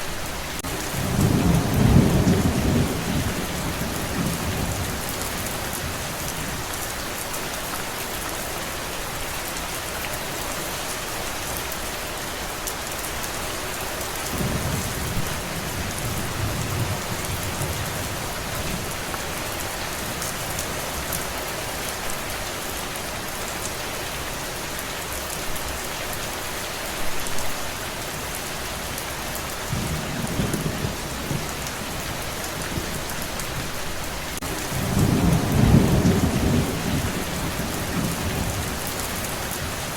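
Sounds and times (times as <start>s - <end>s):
steady rain: 0.0s - 39.9s
thunder rumbling: 0.6s - 6.5s, 14.3s - 19.2s, 29.7s - 39.9s.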